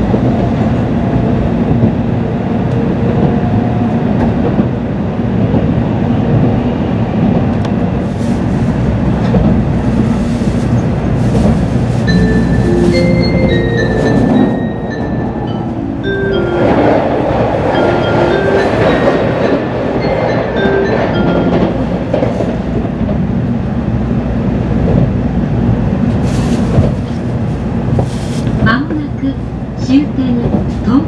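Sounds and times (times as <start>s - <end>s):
passing train rushing: 0.0s - 31.0s
train interior rumble: 0.0s - 31.0s
melody of short held notes: 12.1s - 22.6s.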